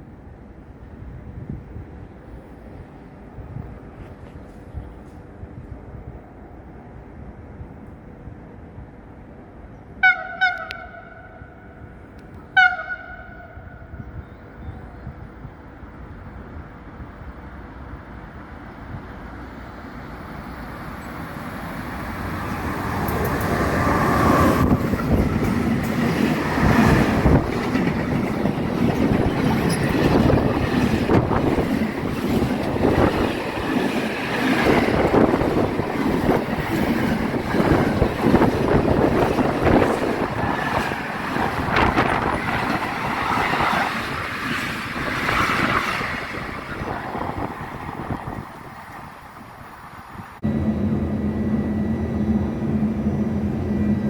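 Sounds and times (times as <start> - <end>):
train passing: 0.0 - 54.0
wheels clattering over rail joints: 24.7 - 46.3.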